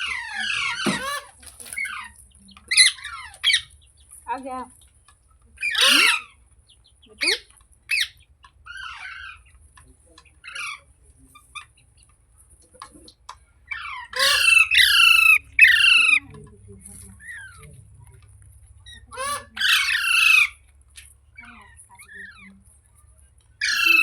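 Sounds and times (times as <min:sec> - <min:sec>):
parrot harsh screeches: 0:00.0 - 0:03.7, 0:05.6 - 0:06.3, 0:13.7 - 0:16.2, 0:18.8 - 0:20.6, 0:23.6 - 0:24.0
parrot squawking: 0:00.0 - 0:03.7, 0:05.6 - 0:06.4, 0:07.2 - 0:09.5, 0:13.7 - 0:16.4, 0:18.8 - 0:20.6, 0:23.6 - 0:24.0
parrot soft chatter: 0:05.5 - 0:06.4, 0:12.6 - 0:20.6, 0:21.3 - 0:24.0.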